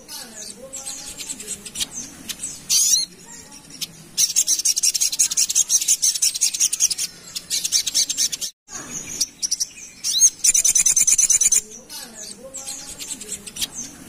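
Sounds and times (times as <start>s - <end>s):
bird singing high chips: 0.0s - 14.0s.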